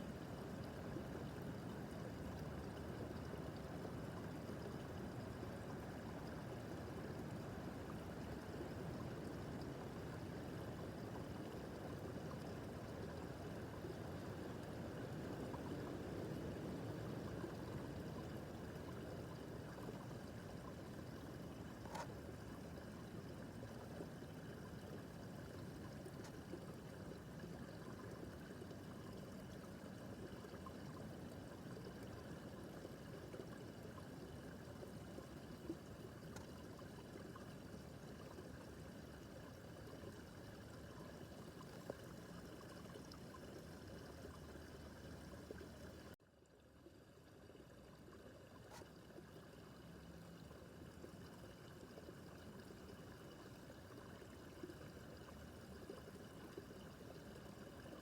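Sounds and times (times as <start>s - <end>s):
babbling brook: 0.0s - 58.0s.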